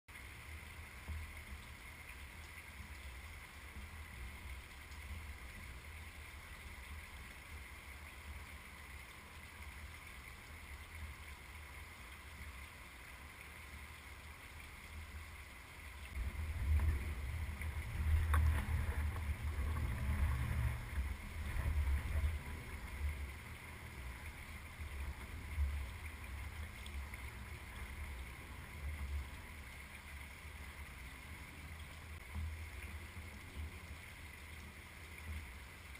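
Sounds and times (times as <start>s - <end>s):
wind buffeting microphone: 16.1s - 28.4s.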